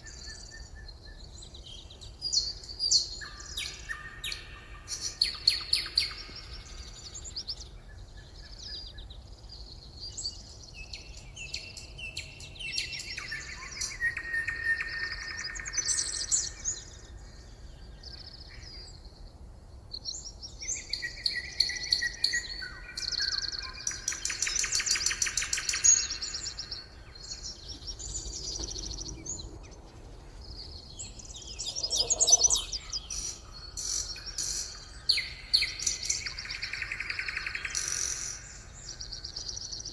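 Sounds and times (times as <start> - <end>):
songbirds chirping and trilling: 0.0 - 39.9
lower louder bird call: 30.8 - 39.4.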